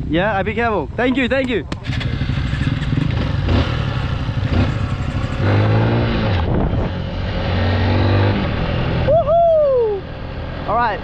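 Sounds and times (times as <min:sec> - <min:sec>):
riding noise: 0:00.4 - 0:11.0
dirt bike engine running: 0:01.3 - 0:07.4.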